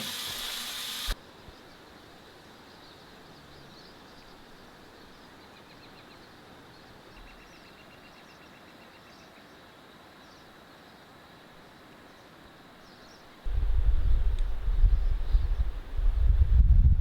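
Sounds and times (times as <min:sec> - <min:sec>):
rain hissing: 0:00.0 - 0:01.2.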